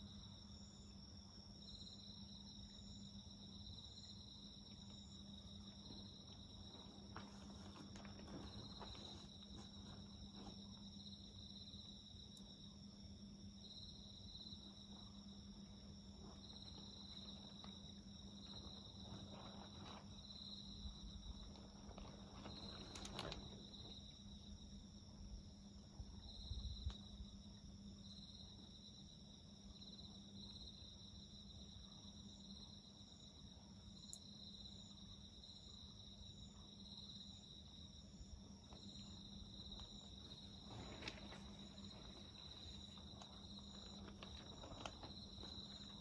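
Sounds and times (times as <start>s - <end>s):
crickets trilling: 0.0s - 46.0s
wood fire crackling: 40.2s - 46.0s.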